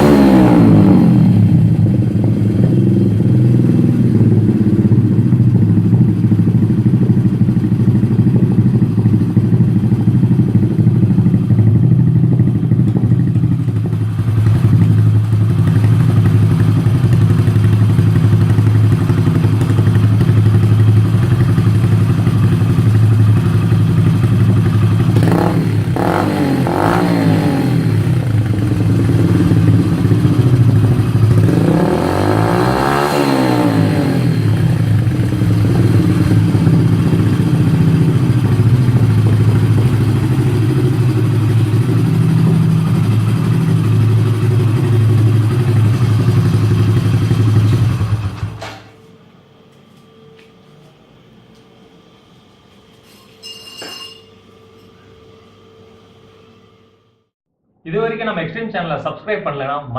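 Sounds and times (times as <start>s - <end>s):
engine revving: 0.0s - 7.7s, 13.8s - 48.6s
motorcycle engine idling: 0.0s - 48.9s.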